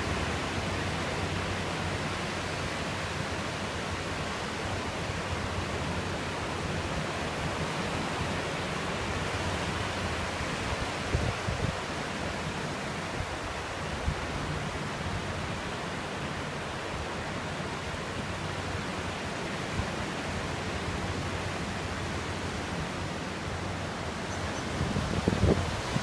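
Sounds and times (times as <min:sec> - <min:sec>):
ocean surf washing on beach: 0:00.0 - 0:26.0.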